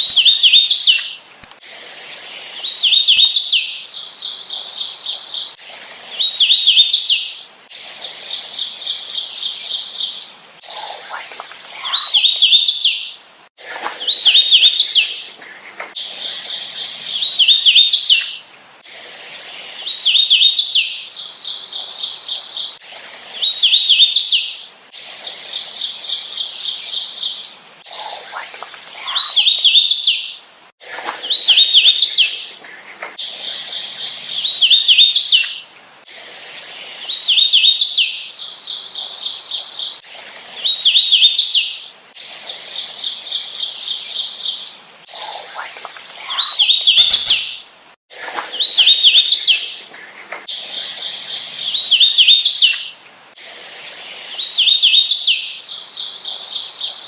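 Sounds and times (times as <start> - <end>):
warbler song: 0.0 - 1.3, 2.0 - 18.6, 19.2 - 35.8, 36.4 - 53.0, 53.7 - 57.0
rapid evenly spaced bird notes: 25.4 - 30.3.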